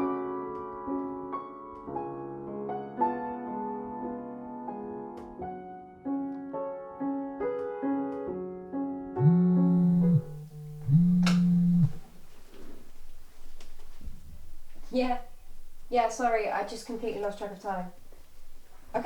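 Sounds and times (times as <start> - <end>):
mobile phone vibrating: 9.2 - 16.0.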